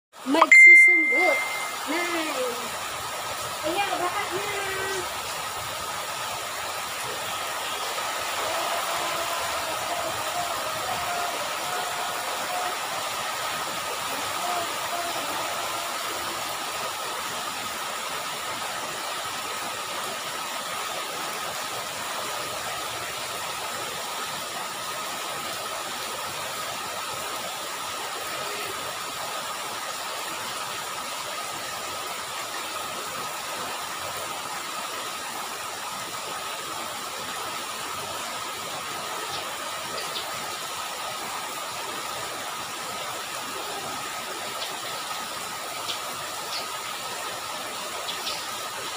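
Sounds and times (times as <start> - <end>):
heavy rain on flooded road: 0.3 - 48.9.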